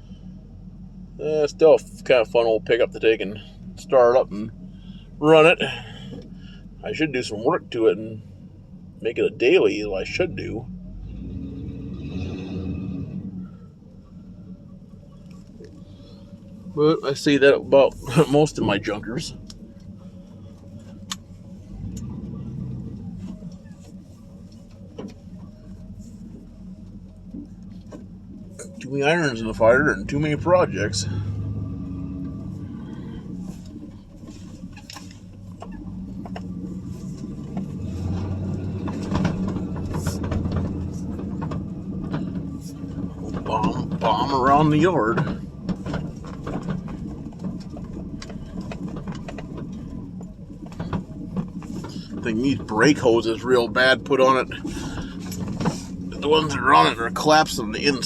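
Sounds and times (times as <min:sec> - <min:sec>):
engine idling: 0:00.0 - 0:58.0
light clicks and rattles: 0:30.5 - 0:58.0.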